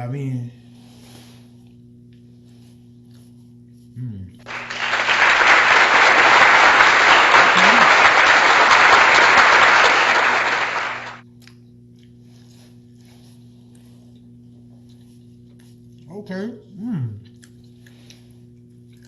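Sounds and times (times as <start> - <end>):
faint steady hum: 0.0 - 19.0
applause: 4.5 - 11.2.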